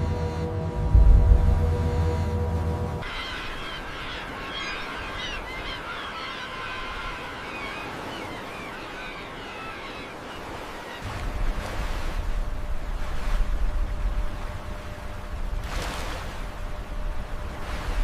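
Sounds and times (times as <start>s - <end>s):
low rumble: 0.0s - 3.0s
birds calling: 3.0s - 11.2s.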